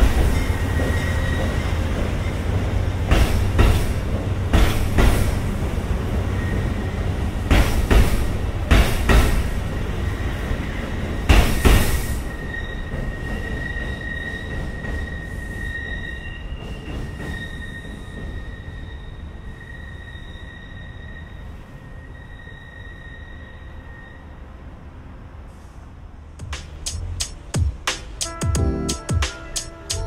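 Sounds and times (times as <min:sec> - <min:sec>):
faint high wheel squeal: 0:00.0 - 0:02.6, 0:11.8 - 0:24.7
train rolling past rumble: 0:00.0 - 0:30.0.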